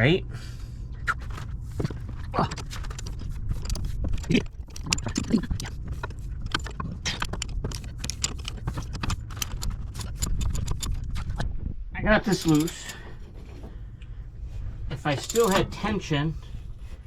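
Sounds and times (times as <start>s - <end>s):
low rumble: 0.0s - 17.0s
wrench clicking on metal: 3.0s - 11.3s, 12.3s - 13.0s, 15.2s - 15.6s.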